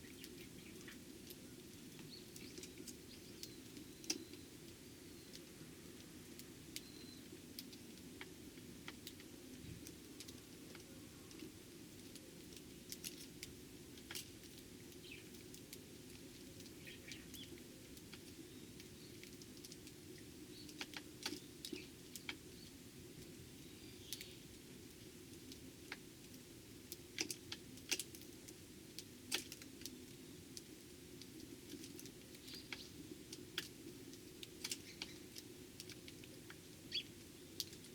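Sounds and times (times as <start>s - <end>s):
faint sparrow chirps: 6.8s - 7.3s, 16.8s - 17.5s, 23.6s - 24.4s, 36.9s - 37.2s.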